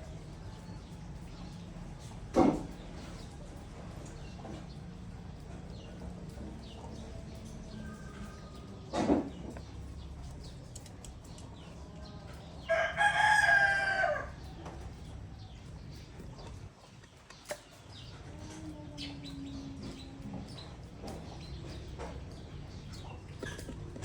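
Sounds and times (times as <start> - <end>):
birds in a loft: 0.0 - 24.0
small clicks: 10.4 - 11.6
drawn-out crowing bird call: 11.6 - 16.5.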